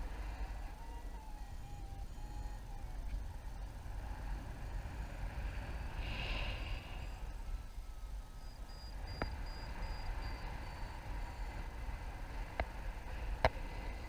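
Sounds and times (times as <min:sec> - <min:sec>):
wind buffeting microphone: 0:00.0 - 0:14.0
faint short beeps: 0:06.6 - 0:11.7.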